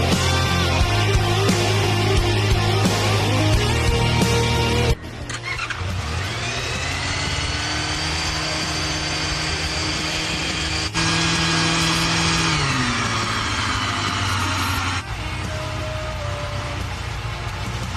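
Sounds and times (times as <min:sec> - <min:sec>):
motorcycle engine starting and running: 0:00.0 - 0:17.9.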